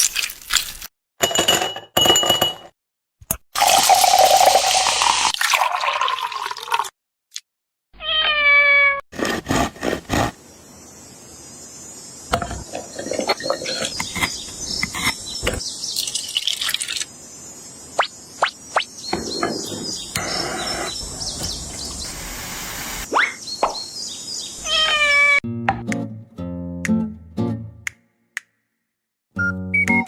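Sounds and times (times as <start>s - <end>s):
cat meow: 8.0s - 9.0s, 24.6s - 25.4s.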